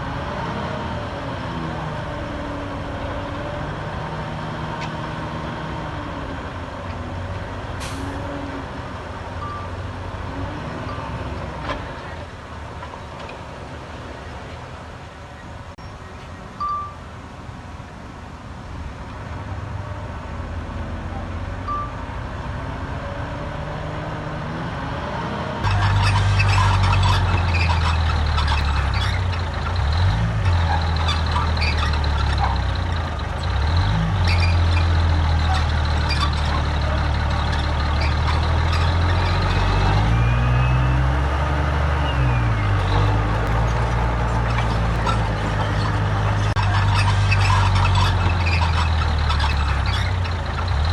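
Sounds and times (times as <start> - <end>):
heavy diesel engine running: 25.6 - 50.9.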